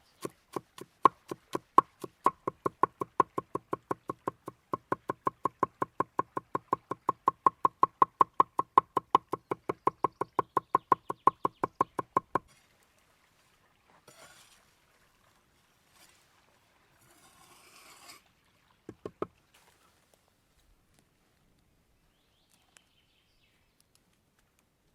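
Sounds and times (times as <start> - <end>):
knife chopping on wooden board: 0.2 - 12.4.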